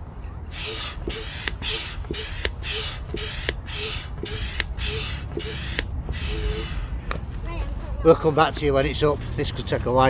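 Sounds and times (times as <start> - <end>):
pump squeaking: 0.0 - 7.0
air pump hissing: 0.5 - 7.3.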